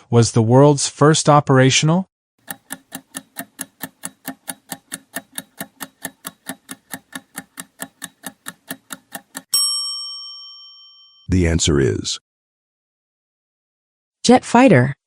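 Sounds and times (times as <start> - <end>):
clock-like ticking: 2.4 - 9.5.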